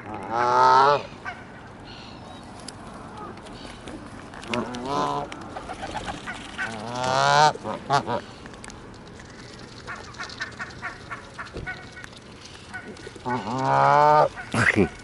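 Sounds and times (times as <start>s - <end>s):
geese honking: 0.0s - 2.2s, 4.5s - 8.4s, 9.8s - 15.0s.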